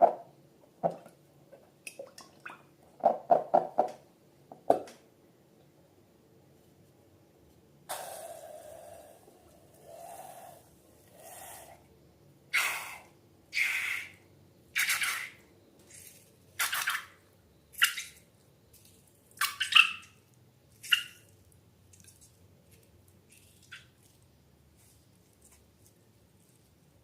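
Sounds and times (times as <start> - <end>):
slime squelching: 20.7 - 26.9.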